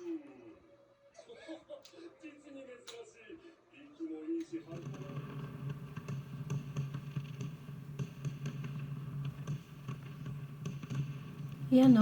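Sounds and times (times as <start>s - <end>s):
fireworks crackling and popping: 4.7s - 12.0s
steady low hum: 4.7s - 12.0s.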